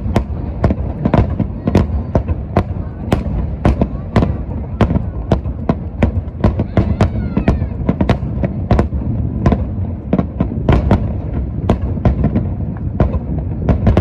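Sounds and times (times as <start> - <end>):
low rumble of booms: 0.0 - 14.0.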